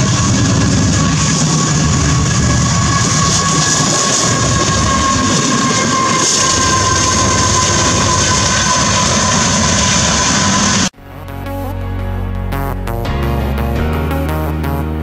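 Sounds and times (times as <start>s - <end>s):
freight train running noise: 0.0s - 11.0s
high whine: 0.0s - 15.0s.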